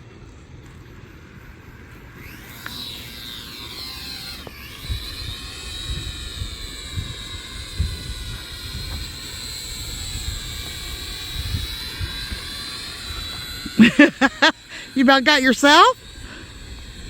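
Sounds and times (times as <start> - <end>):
toy drone propellers whining: 0.0 - 17.0.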